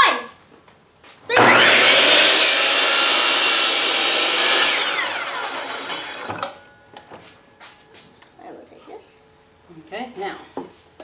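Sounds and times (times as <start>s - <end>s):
power saw cutting wood: 1.3s - 6.6s.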